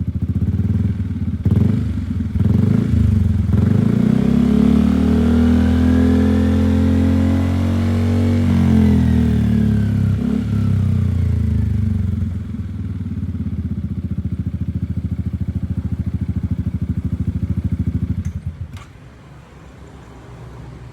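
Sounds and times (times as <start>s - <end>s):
scooter engine idling: 0.0s - 3.7s, 9.8s - 19.1s.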